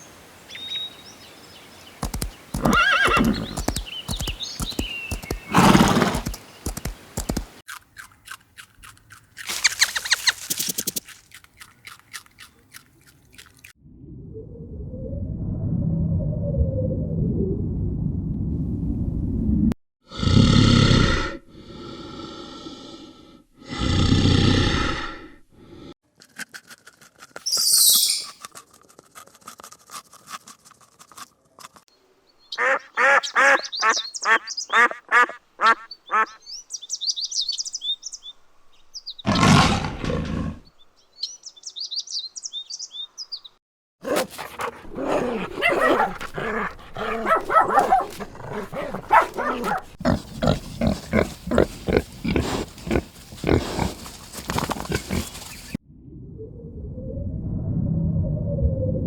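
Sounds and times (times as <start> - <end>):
high chirping: 2.0 - 7.4, 9.5 - 11.0, 27.5 - 28.4, 32.5 - 34.9
repeated animal calls: 32.5 - 36.4
loud animal calls: 32.6 - 36.4.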